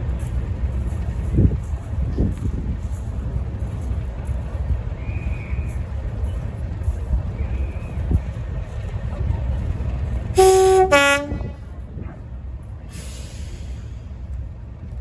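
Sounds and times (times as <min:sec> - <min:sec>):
two-tone train horn: 0:10.3 - 0:11.7
brief hiss: 0:12.9 - 0:14.2.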